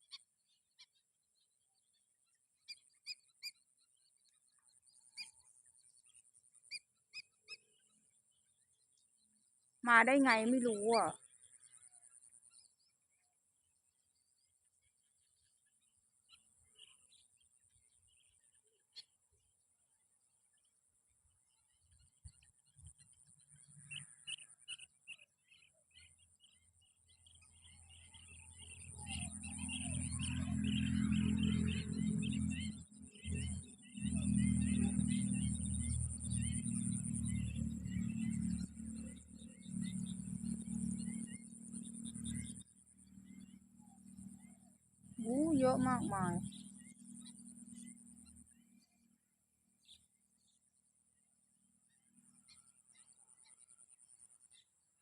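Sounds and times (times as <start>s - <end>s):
faint bird chirps: 0.0s - 55.0s
low hum: 27.2s - 49.0s.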